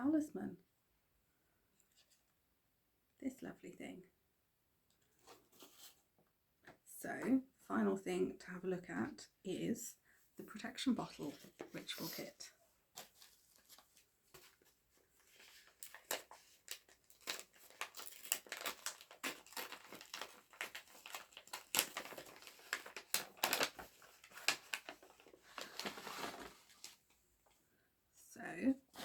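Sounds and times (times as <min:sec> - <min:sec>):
packaging crinkling and rustling: 0:13.0 - 0:27.1.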